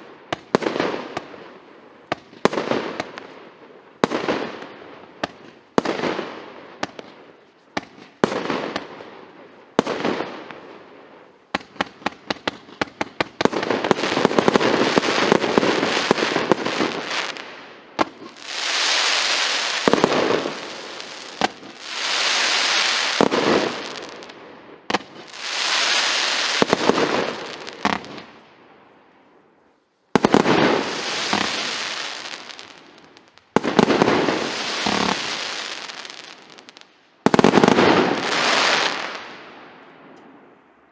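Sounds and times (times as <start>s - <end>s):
firework shots: 11.6s - 28.4s, 30.2s - 40.2s
crackling firework bursts: 11.6s - 28.6s, 30.1s - 40.2s.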